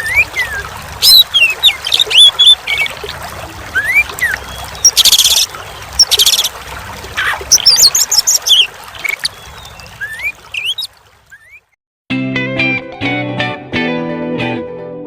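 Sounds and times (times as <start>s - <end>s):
magpie-robin singing: 0.0s - 2.9s, 3.8s - 6.5s, 7.2s - 11.7s
running water trickling: 0.0s - 11.8s.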